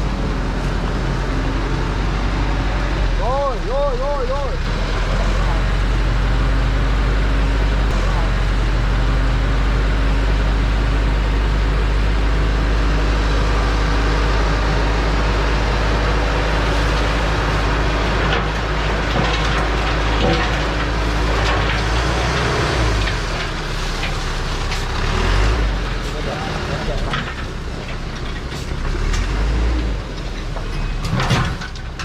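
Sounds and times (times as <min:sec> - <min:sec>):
truck engine running: 0:00.0 - 0:30.7
clattering and knocks: 0:18.2 - 0:24.2, 0:30.2 - 0:32.0.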